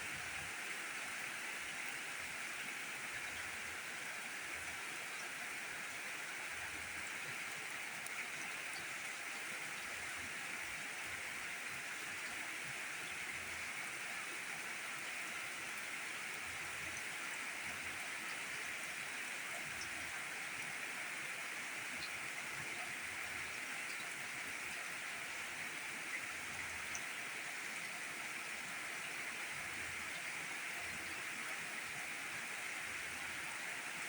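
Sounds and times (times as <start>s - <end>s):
steady rainfall: 0.0s - 34.0s.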